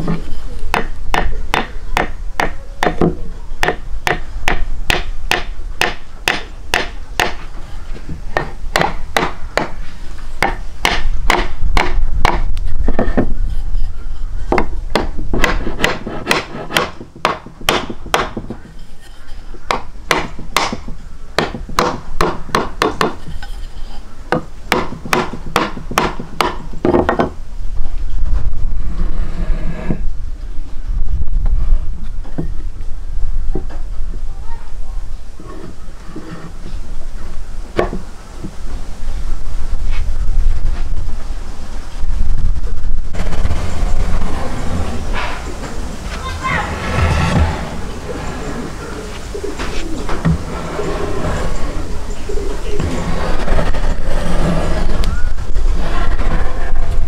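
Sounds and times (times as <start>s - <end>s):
sharp knocks: 0.7s - 7.4s, 8.4s - 9.8s, 10.4s - 13.3s, 14.5s - 18.6s, 19.7s - 23.2s, 24.3s - 27.4s
steady low rumble: 39.4s - 57.0s.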